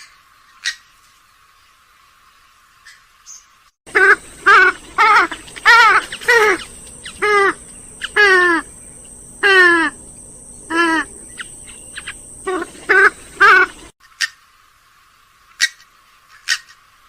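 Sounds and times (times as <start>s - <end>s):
swamphen calling: 2.8s - 14.4s.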